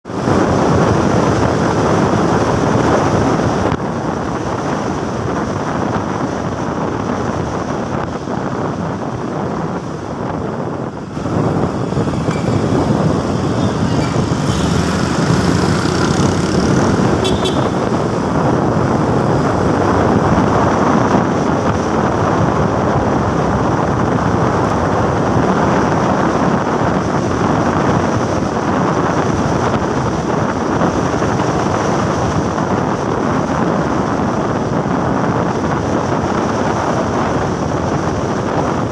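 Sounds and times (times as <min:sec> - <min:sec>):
wind rushing over microphone: 0:00.0 - 0:38.9
motorcycle engine running: 0:09.4 - 0:21.3.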